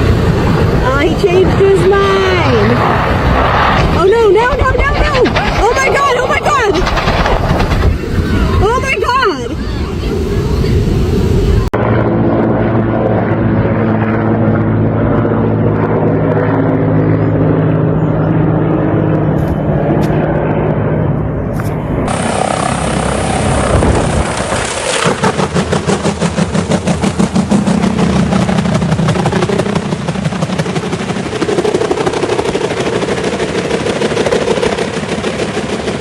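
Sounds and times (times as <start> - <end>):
helicopter rotor chopping: 0.0 - 36.0.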